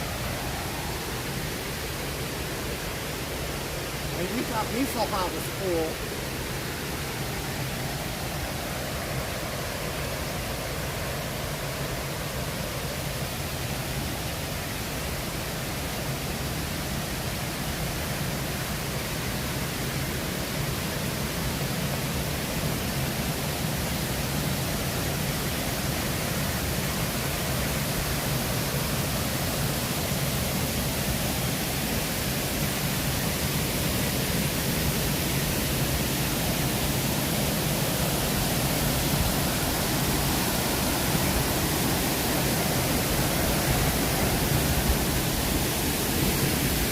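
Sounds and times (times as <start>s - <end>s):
waterfall roaring: 0.0s - 46.9s.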